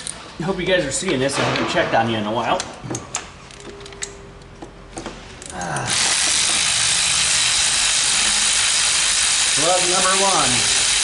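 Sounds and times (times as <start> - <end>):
compressed air hissing: 5.9 - 11.0.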